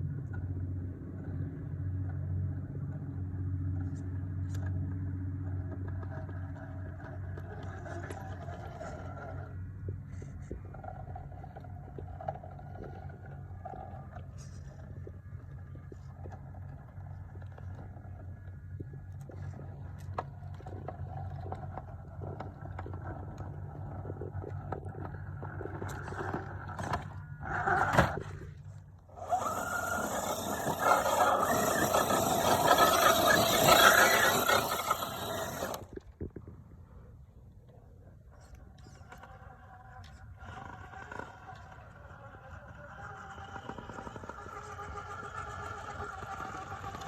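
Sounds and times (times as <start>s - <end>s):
toy truck drivetrain whirring: 5.4s - 18.4s, 20.1s - 36.2s, 38.4s - 47.0s.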